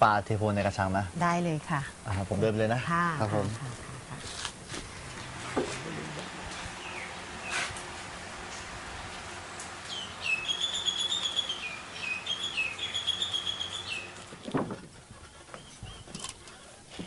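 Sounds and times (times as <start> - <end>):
background hiss: 0.0 - 17.0
bird singing whistled notes: 9.9 - 14.2.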